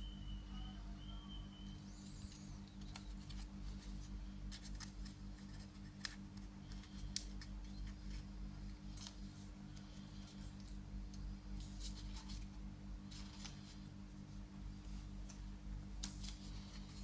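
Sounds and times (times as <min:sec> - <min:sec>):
steady low hum: 0:00.0 - 0:17.0
paper being folded and creased: 0:11.6 - 0:12.5, 0:13.1 - 0:13.8, 0:16.0 - 0:17.0.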